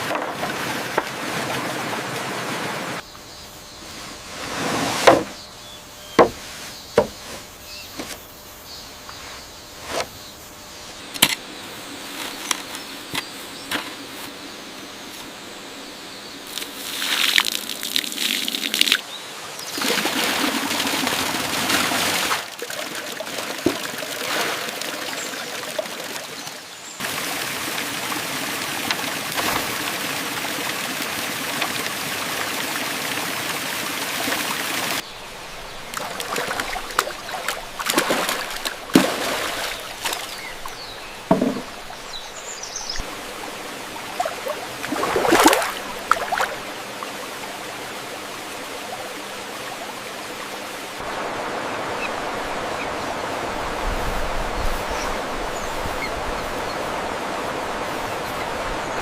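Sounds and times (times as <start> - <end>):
water running and trickling: 19.6 - 51.3.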